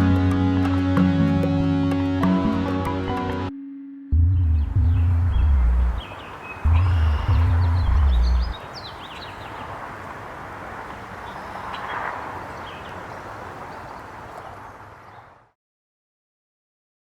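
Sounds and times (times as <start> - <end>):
background music: 0.0 - 6.1, 6.7 - 8.5
short bird chirps: 5.0 - 9.8
steady background hiss: 5.8 - 15.1.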